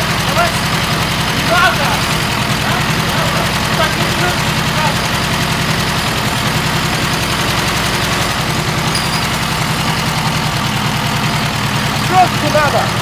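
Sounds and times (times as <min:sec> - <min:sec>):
car engine running steadily: 0:00.0 - 0:13.0.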